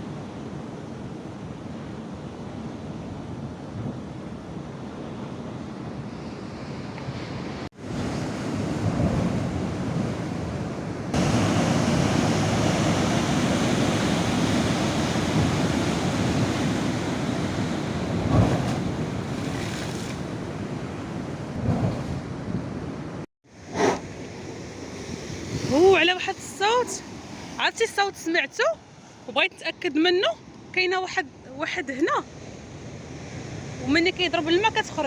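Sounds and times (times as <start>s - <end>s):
sea waves washing on shore: 0.0s - 28.1s.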